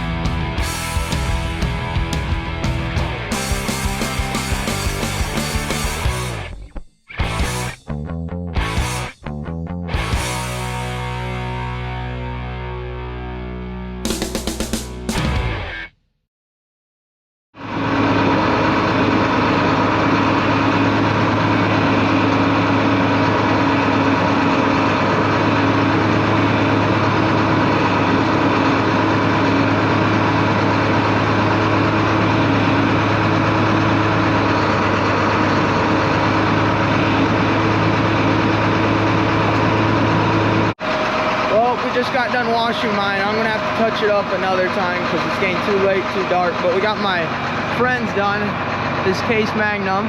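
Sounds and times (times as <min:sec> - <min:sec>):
engine running steadily: 0:00.0 - 0:06.6, 0:17.6 - 0:50.0.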